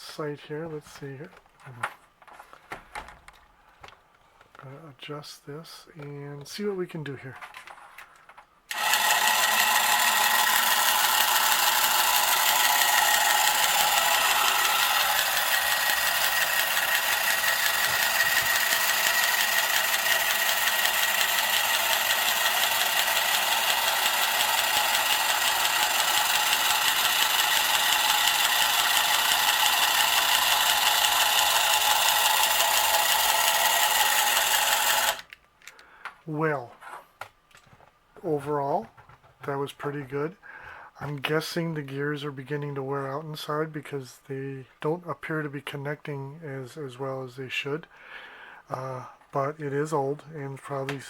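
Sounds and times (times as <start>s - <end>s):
toy helicopter motor and gears: 8.7s - 35.4s.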